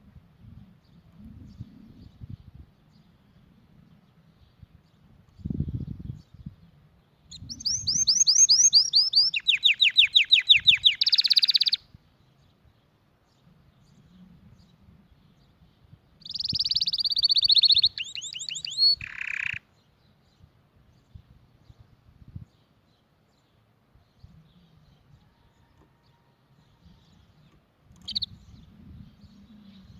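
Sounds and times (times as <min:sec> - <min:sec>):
canary singing trills: 0:07.3 - 0:12.0, 0:16.2 - 0:20.2, 0:24.1 - 0:29.9.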